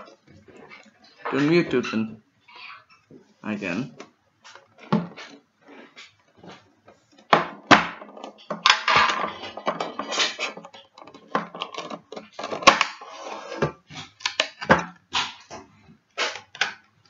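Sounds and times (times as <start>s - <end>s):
tin and packaging handling: 8.1s - 15.4s.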